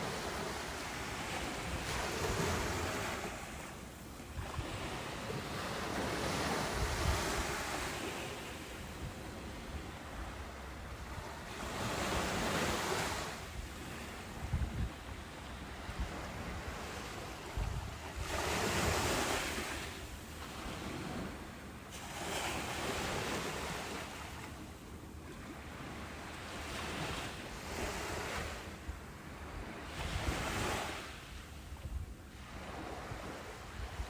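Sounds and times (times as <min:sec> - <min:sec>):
ocean waves breaking: 0:00.0 - 0:14.4, 0:15.1 - 0:24.6.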